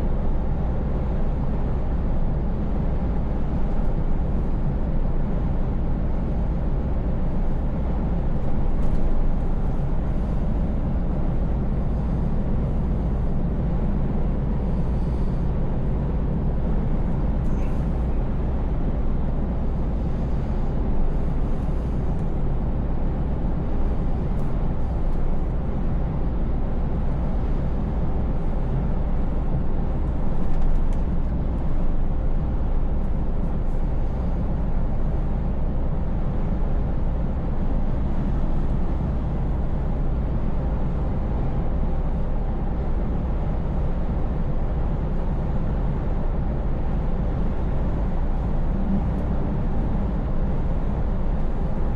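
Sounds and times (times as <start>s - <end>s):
road noise: 0.0s - 51.9s
truck engine droning: 44.8s - 51.9s.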